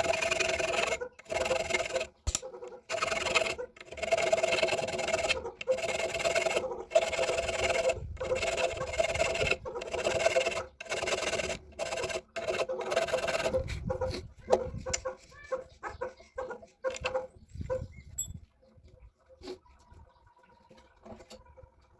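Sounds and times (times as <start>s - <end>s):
hand tool rasping on metal: 0.0s - 15.1s.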